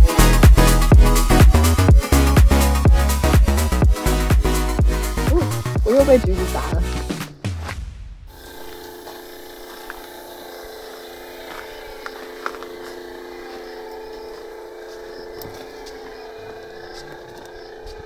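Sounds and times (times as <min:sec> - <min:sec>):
steady motor hum: 0:08.3 - 0:18.0.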